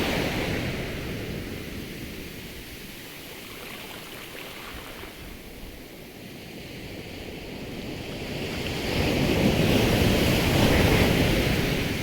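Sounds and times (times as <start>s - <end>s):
sea waves washing in: 2.2s - 5.9s.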